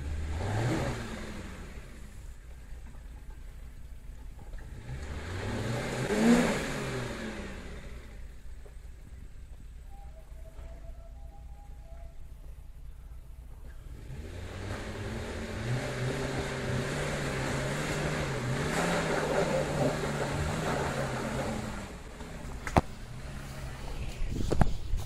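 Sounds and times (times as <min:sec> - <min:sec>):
vehicle engine pulling uphill: 0:00.0 - 0:25.0.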